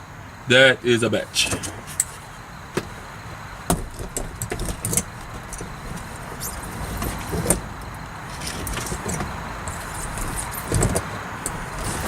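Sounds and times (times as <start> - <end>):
low steady hum: 0.0 - 12.0
sharp knocks: 3.7 - 5.8.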